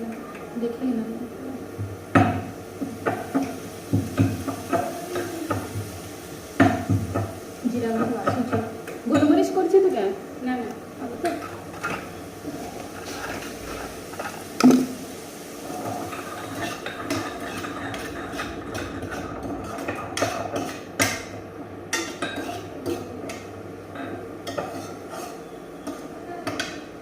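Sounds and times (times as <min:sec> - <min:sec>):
utensil scraping metal pan: 0:15.8 - 0:20.8.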